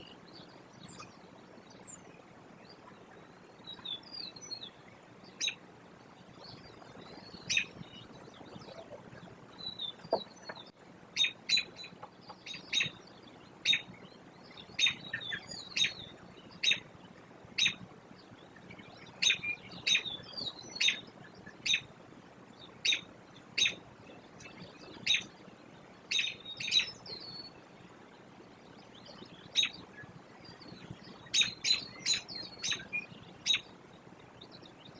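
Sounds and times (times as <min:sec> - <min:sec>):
soft twittering chirps: 0:00.0 - 0:34.9
birds chirping sharp calls: 0:05.4 - 0:05.6, 0:06.4 - 0:16.9, 0:17.6 - 0:17.8, 0:18.6 - 0:21.9, 0:22.8 - 0:25.3, 0:26.1 - 0:27.5, 0:30.5 - 0:33.7.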